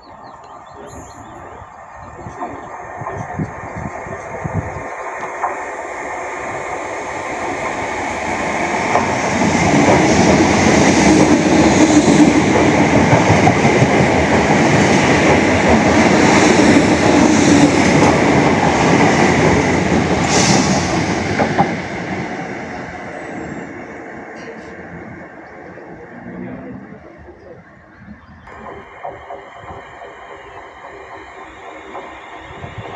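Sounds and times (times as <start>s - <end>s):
train wheels clicking over rail joints: 2.3s - 23.0s, 28.5s - 32.9s.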